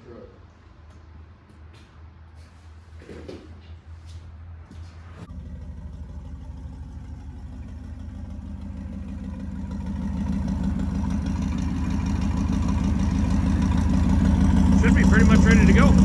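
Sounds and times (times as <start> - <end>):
car engine idling: 5.3 - 16.0.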